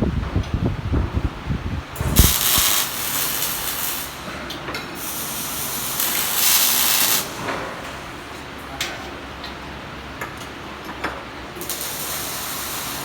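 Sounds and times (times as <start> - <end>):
arc welding hiss: 2.0 - 4.4, 5.0 - 7.5, 11.6 - 13.0.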